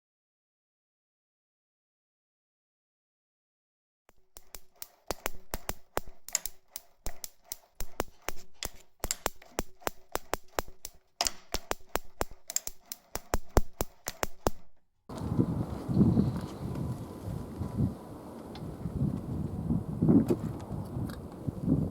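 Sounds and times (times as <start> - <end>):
small engine popping: 4.1 - 15.2
steady low rumble: 15.1 - 21.9.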